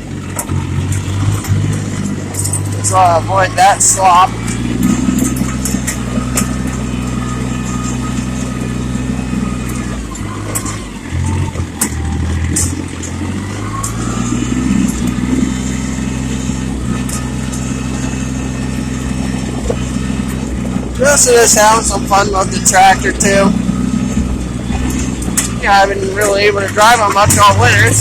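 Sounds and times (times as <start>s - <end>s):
diesel tractor engine running: 0.0s - 28.0s
light rattles and clicks: 0.3s - 2.8s.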